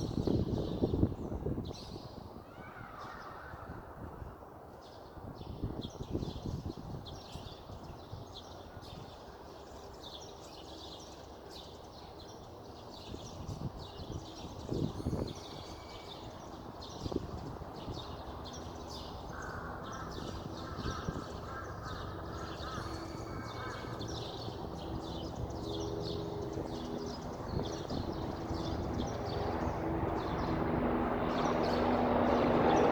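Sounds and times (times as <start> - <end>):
songbirds chirping: 0.0 - 32.9
engine hum of passing vehicle: 18.0 - 32.9.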